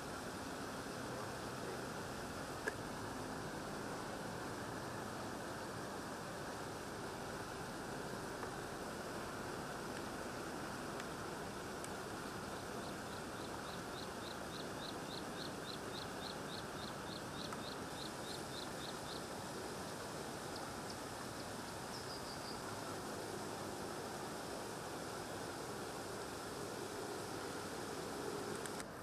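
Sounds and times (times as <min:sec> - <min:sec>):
outdoor background noise: 0:00.0 - 0:29.0
small bird chirping: 0:12.4 - 0:19.3, 0:21.9 - 0:22.6.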